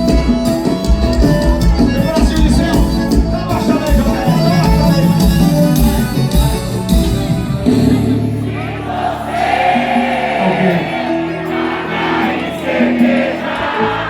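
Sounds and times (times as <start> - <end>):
live band music: 0.0 - 14.0
crowd singing along: 8.1 - 14.0.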